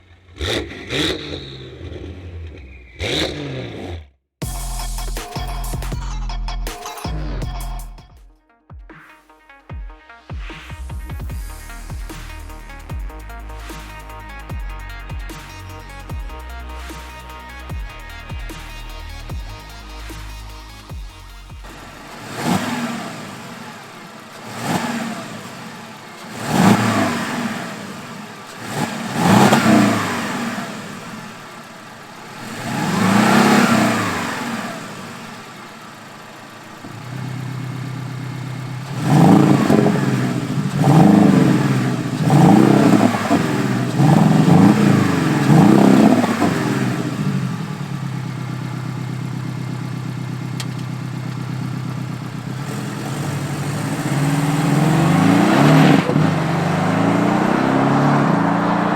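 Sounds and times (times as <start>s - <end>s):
car engine revving in blips: 0.0s - 4.2s, 21.6s - 58.9s
car engine idling: 11.3s - 58.9s.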